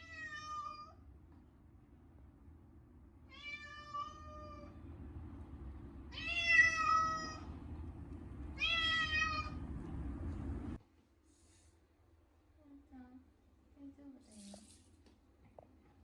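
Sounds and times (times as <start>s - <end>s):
cat yowling: 0.0s - 1.0s, 3.3s - 4.8s, 6.1s - 7.5s, 8.6s - 9.6s
steady low rumble: 4.1s - 10.8s.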